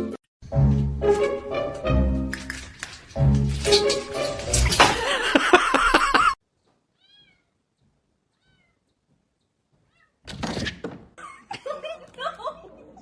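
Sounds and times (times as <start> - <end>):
cat meowing loudly: 7.0 - 7.6, 8.4 - 8.8.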